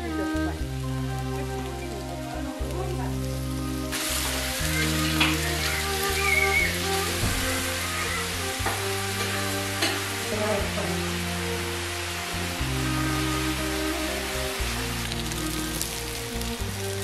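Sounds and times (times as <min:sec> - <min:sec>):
dumplings sizzling in oil: 0:00.0 - 0:17.0
slow low background music: 0:00.0 - 0:17.0.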